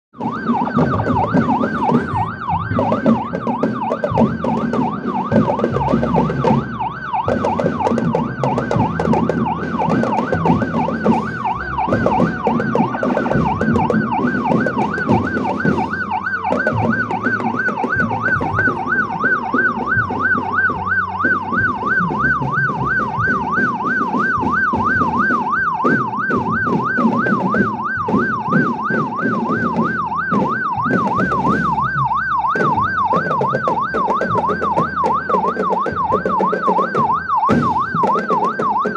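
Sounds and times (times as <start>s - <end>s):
marching drum band: 0.1s - 38.9s
electronic siren warbling: 0.2s - 38.9s.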